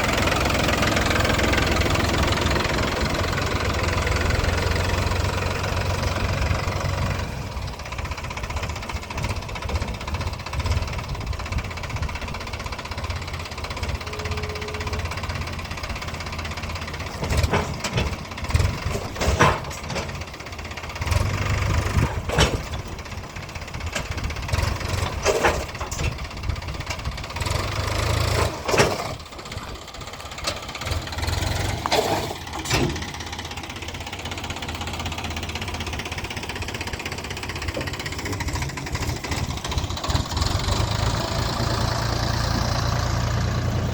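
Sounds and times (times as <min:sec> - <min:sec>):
diesel engine running unevenly: 0:00.0 - 0:43.9
metallic clanks and knocks: 0:17.1 - 0:20.3, 0:22.0 - 0:22.9, 0:24.9 - 0:26.3, 0:31.8 - 0:33.2.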